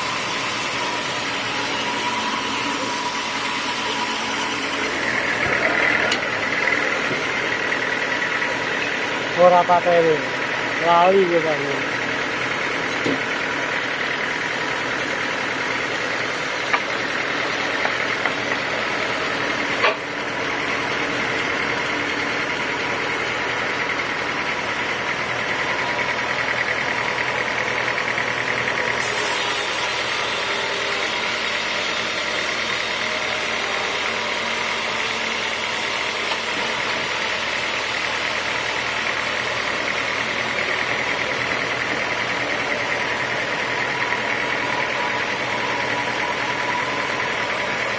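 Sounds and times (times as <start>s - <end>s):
sawmill machinery droning: 0.0s - 47.9s
hiss: 29.0s - 36.4s.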